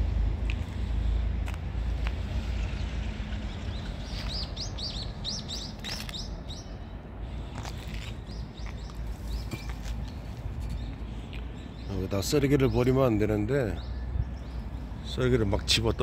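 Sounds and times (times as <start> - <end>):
steady low rumble: 0.0 - 12.5
small bird chirping: 3.5 - 6.8.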